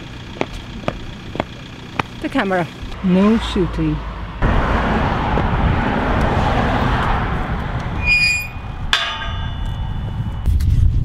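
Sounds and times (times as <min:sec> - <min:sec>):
wind buffeting microphone: 0:04.1 - 0:11.0
high electronic beep: 0:08.0 - 0:08.6.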